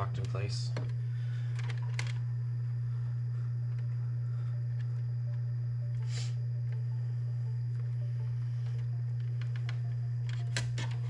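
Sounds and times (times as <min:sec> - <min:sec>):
parts being handled: 0:00.0 - 0:02.3
steady low hum: 0:00.0 - 0:11.0.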